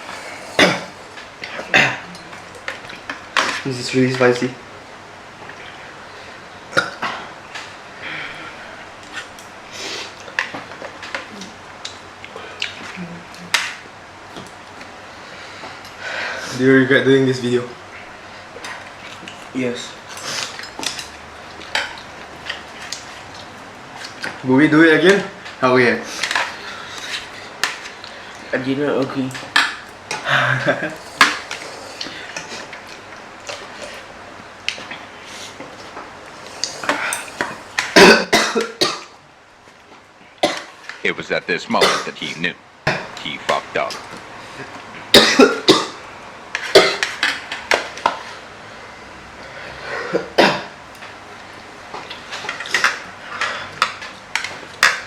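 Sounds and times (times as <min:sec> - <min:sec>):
low vocal hums: 0:12.4 - 0:13.5.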